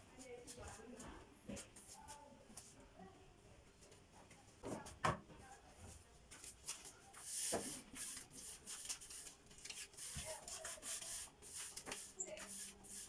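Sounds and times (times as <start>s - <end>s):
rustling and rubbing of objects: 3.7s - 13.0s.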